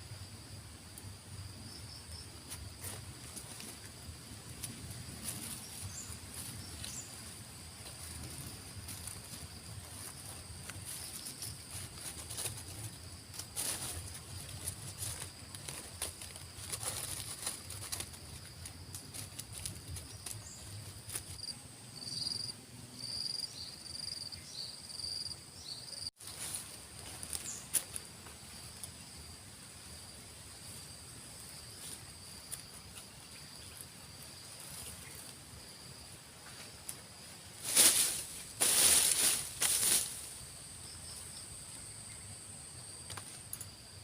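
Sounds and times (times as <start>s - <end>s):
insects droning: 0.0s - 44.0s
handling rustles and knocks: 7.7s - 21.5s, 36.4s - 40.3s.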